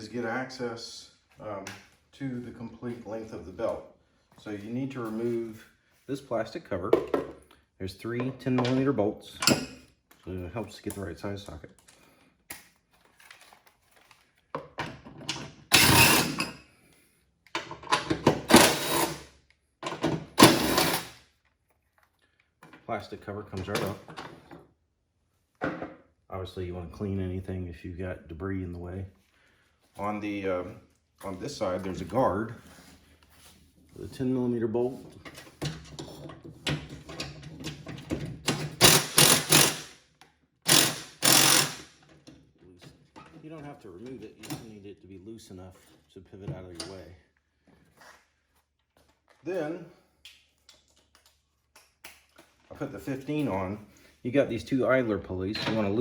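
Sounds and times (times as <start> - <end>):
power driver running: 20.4 - 21.1, 38.8 - 39.9, 40.7 - 41.9
socket ratchet clicking: 38.8 - 40.0, 40.7 - 41.9.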